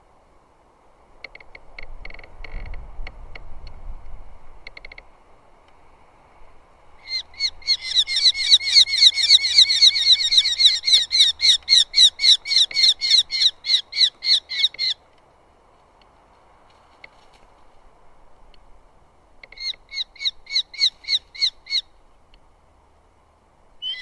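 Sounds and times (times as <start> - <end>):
bird calling sharp repeated notes: 7.0 - 15.0, 19.4 - 22.0, 23.8 - 24.0.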